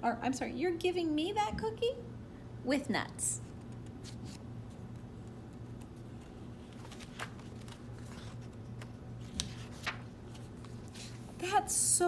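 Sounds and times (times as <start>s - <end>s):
paper rustling: 5.5s - 11.4s.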